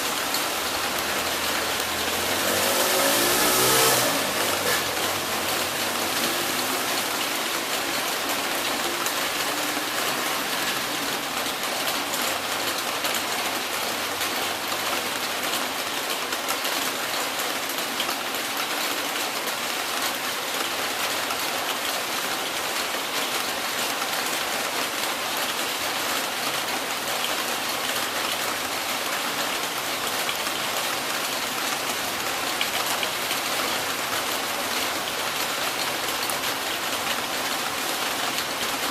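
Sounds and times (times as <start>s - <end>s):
heavy rain falling: 0.0s - 38.9s
passing vehicle engine: 0.2s - 11.4s.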